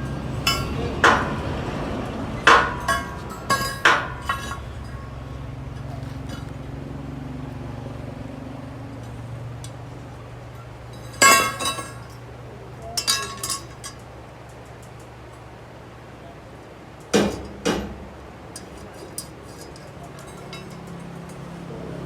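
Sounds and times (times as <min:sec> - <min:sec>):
steel parts clanking: 0:00.0 - 0:06.9, 0:10.4 - 0:15.4, 0:17.0 - 0:21.8.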